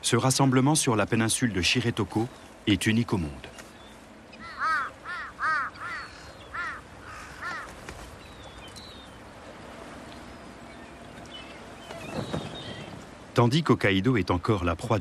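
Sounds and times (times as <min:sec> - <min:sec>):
faint steady hiss: 0:00.0 - 0:15.0
large bird calling: 0:03.7 - 0:09.2.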